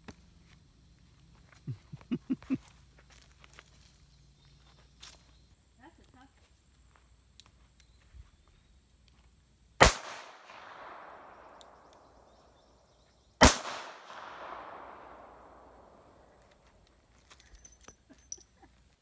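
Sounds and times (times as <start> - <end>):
gunshots with rolling echo: 9.8 - 12.3, 13.4 - 16.4.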